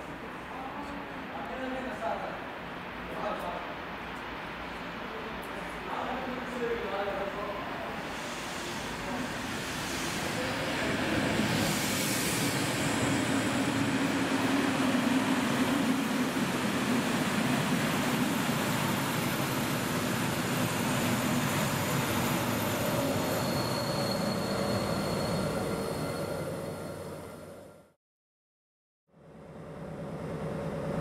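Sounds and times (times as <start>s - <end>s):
thin high locomotive whine: 1.9s - 28.0s, 29.1s - 31.0s
train wheels rumbling on rail: 8.0s - 27.5s.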